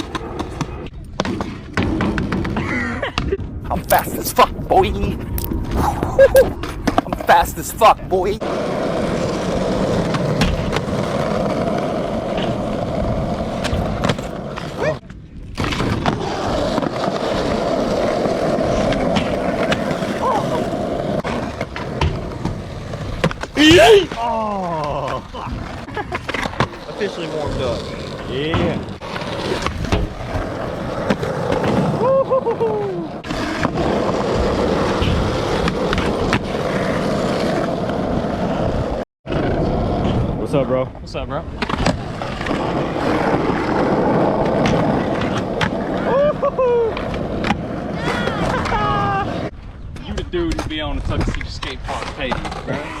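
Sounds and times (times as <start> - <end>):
skateboard clacks: 0.0 - 3.3
skateboard clicks and knocks: 0.0 - 4.4, 8.4 - 40.2, 41.5 - 53.0
skateboard wheels rolling: 0.0 - 53.0.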